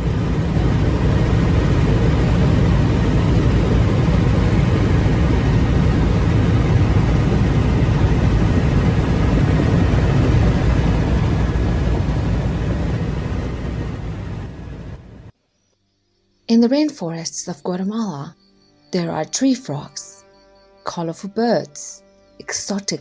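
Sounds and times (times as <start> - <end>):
jet engine cabin rush: 0.0 - 15.3.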